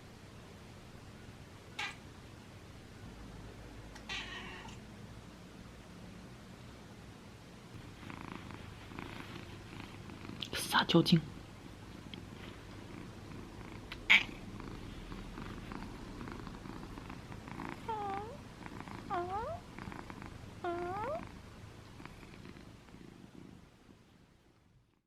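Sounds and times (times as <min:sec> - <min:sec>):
cat calling: 0:01.8 - 0:02.0, 0:04.0 - 0:04.8, 0:13.9 - 0:14.4
cat purring: 0:07.7 - 0:25.0.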